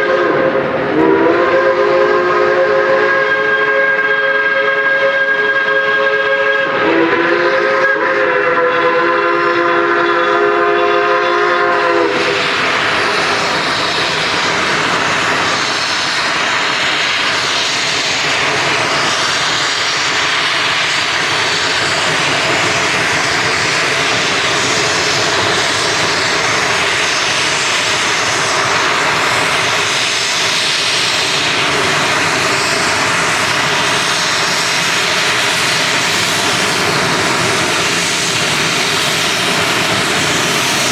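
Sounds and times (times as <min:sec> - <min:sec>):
steam locomotive whistle: 0:00.0 - 0:14.8
loud rushing noise: 0:11.8 - 0:40.9.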